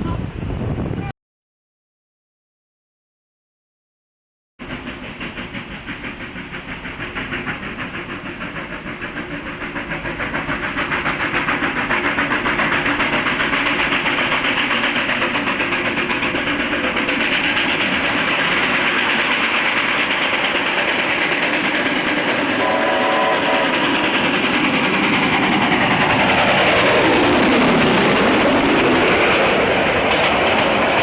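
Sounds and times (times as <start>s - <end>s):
steam locomotive exhaust beating: 4.6s - 31.0s.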